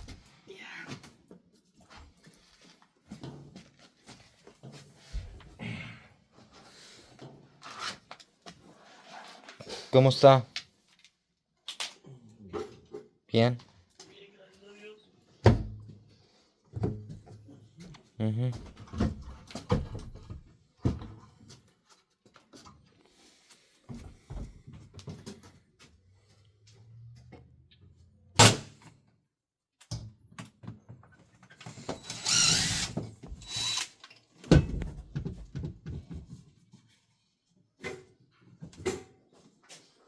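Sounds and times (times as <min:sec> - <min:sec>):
tools knocking and thudding: 0:16.7 - 0:18.0, 0:34.4 - 0:36.5
harsh tool scraping: 0:31.8 - 0:34.0.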